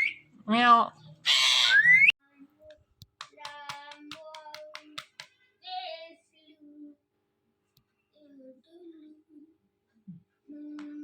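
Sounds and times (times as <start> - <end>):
parrot high call: 1.2 - 2.1.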